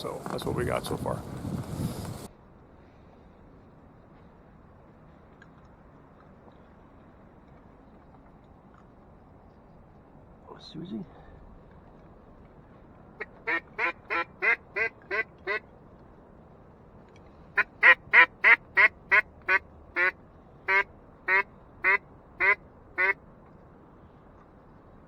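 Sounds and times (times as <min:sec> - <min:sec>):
duck call quacks: 0:13.2 - 0:15.6, 0:17.6 - 0:23.2.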